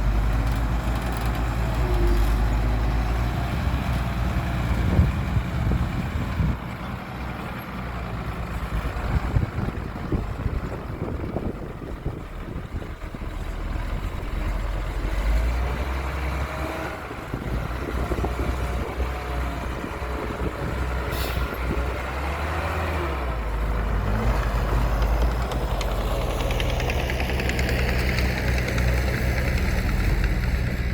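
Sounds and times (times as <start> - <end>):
heavy diesel engine running: 0.0 - 30.9.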